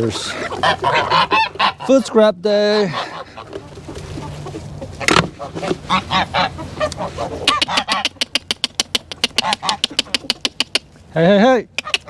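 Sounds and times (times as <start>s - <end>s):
chickens squawking and clucking: 0.0s - 10.9s
sharp ticks: 7.5s - 10.9s.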